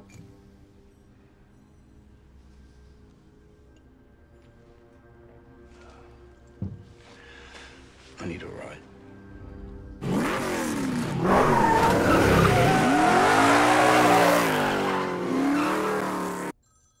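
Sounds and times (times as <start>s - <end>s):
car engine revving: 10.0s - 16.6s
tyre squeal: 11.2s - 16.5s.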